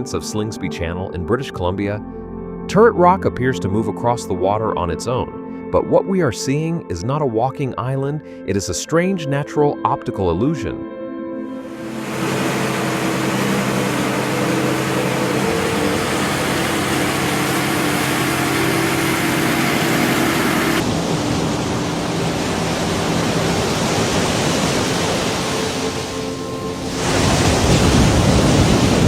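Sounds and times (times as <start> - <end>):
rushing tidal water: 11.7 - 29.0.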